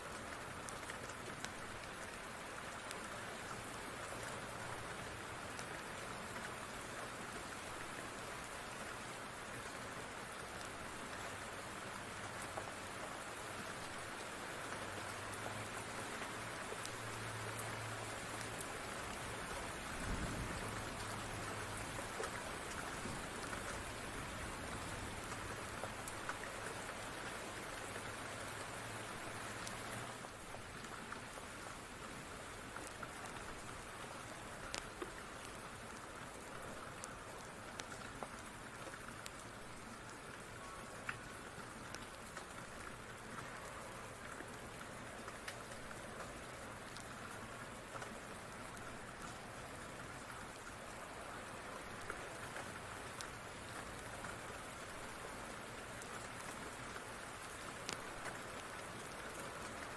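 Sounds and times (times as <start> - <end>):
rain falling on a surface: 0.0 - 59.9.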